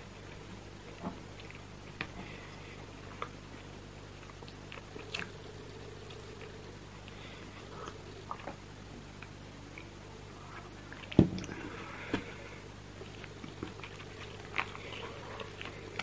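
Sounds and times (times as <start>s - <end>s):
chewing mouth sounds: 4.2s - 5.4s.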